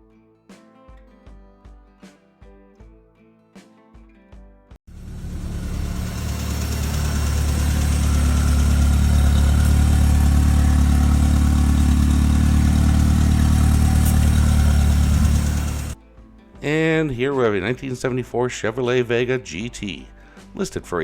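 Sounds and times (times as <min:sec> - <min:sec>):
car engine running: 0:04.9 - 0:16.0.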